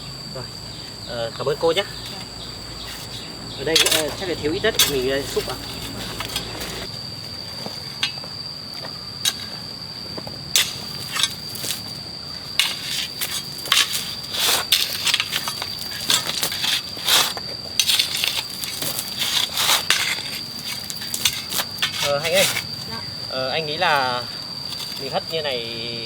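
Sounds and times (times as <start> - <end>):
shovel scraping soil and stones: 2.8 - 6.9, 10.5 - 11.9, 12.6 - 22.9.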